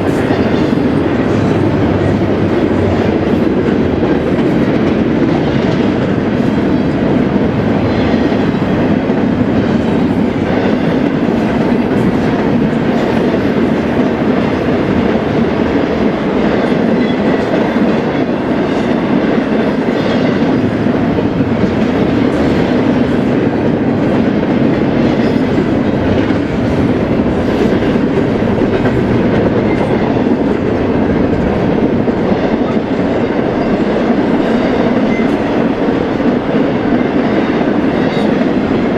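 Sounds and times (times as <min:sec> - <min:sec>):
freight train wheels on rail: 0:00.0 - 0:38.9.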